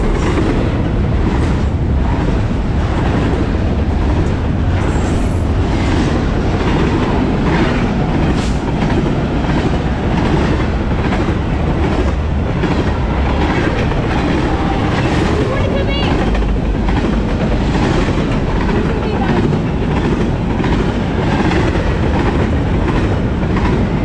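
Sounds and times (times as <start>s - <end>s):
freight train wheels rumbling: 0.0s - 24.0s
wheels clicking over rail joints: 6.2s - 24.0s.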